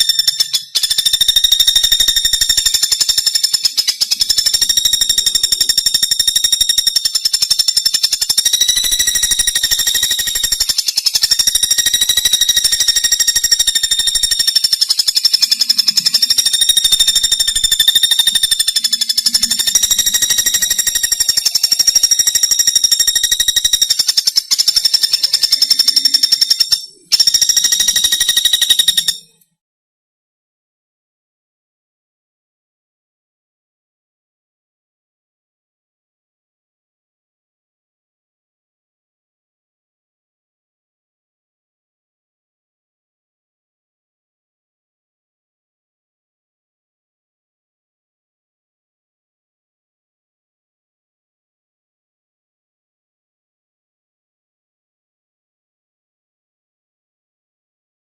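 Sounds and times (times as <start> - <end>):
woodpecker rattling trill: 0.0 - 29.4.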